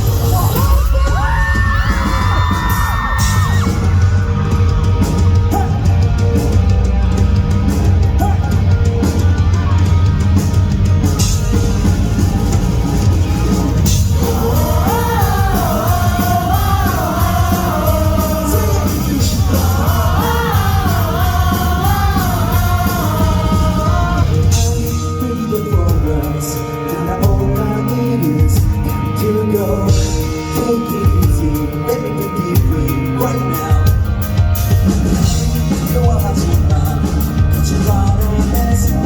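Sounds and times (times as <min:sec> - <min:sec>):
male lead vocal: 0:00.0 - 0:04.3, 0:05.4 - 0:06.0, 0:13.8 - 0:39.0
live rock band playing: 0:00.0 - 0:39.0.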